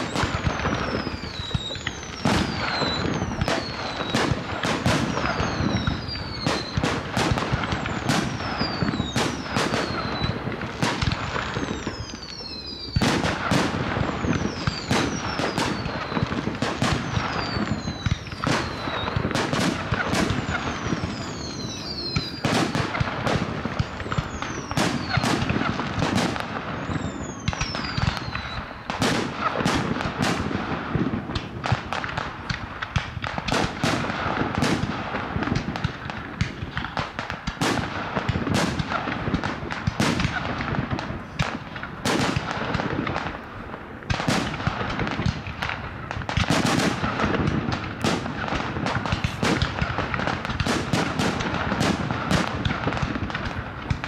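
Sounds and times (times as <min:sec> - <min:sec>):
falling firework whistles: 0:00.0 - 0:30.4
fireworks bursting: 0:00.0 - 0:54.0.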